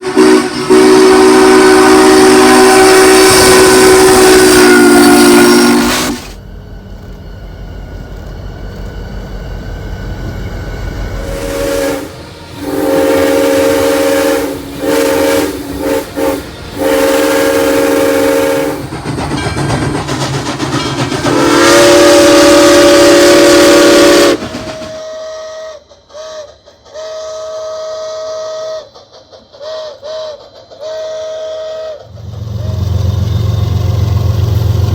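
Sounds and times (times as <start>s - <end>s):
steam locomotive whistle blasts: 0.0s - 6.4s, 11.2s - 18.9s, 21.1s - 29.0s, 29.6s - 34.9s.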